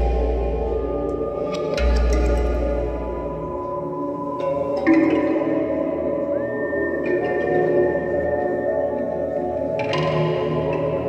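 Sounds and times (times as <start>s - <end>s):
sustained synth drones: 0.0s - 6.2s.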